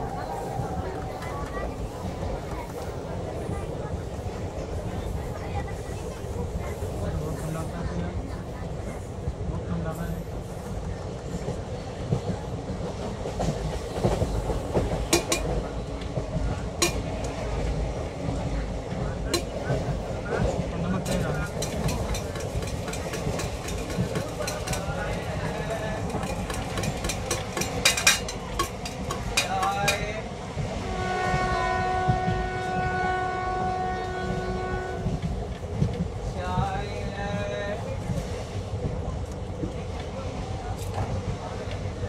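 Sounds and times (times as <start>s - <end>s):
train low rumble: 0.0s - 42.0s
train horn blast: 30.8s - 35.2s.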